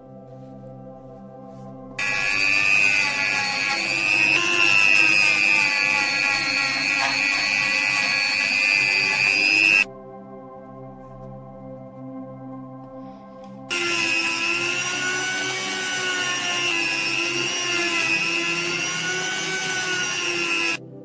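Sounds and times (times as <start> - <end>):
electric power tool whining: 2.0 - 9.9, 13.7 - 20.8.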